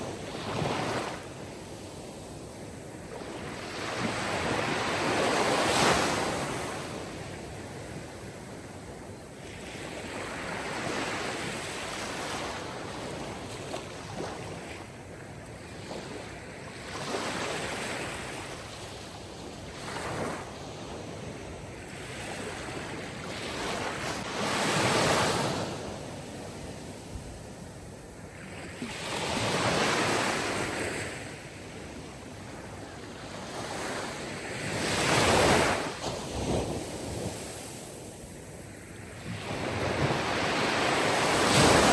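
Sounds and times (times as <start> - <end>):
sea waves breaking on shore: 0.0 - 8.4, 15.6 - 27.6, 28.2 - 41.9.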